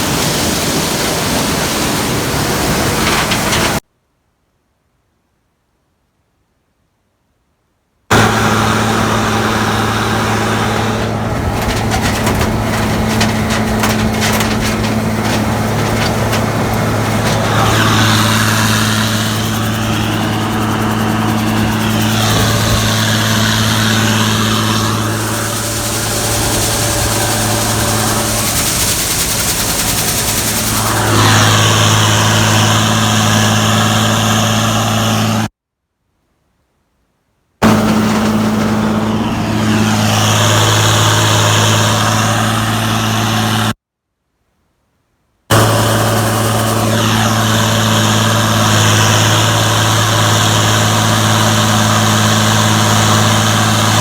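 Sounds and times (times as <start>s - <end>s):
combine engine hum: 0.0s - 3.8s, 8.1s - 35.5s, 37.6s - 43.8s, 45.5s - 54.0s
rough crackling: 2.2s - 3.8s, 8.1s - 34.3s, 37.6s - 42.6s
loud rushing noise: 8.1s - 35.2s, 45.5s - 54.0s.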